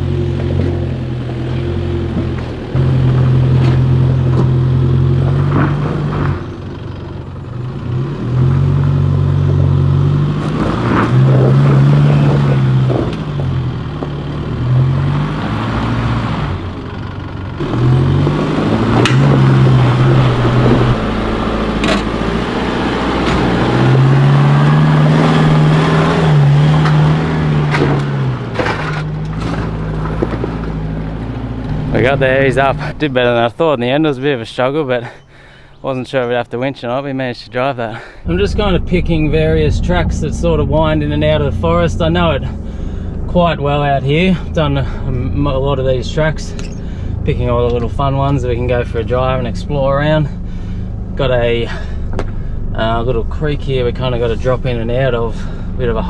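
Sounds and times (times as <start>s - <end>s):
vehicle knocks and clunks: 0.0s - 35.9s, 51.7s - 52.8s
engine revving: 0.0s - 37.0s, 37.6s - 56.0s.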